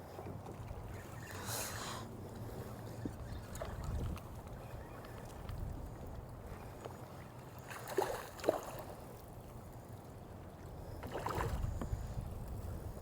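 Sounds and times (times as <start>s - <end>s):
wind noise: 2.6s - 4.3s.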